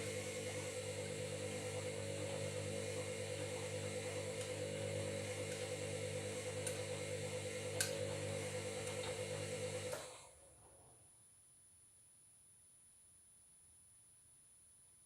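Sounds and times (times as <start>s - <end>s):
washing machine motor hum: 0.0s - 10.5s.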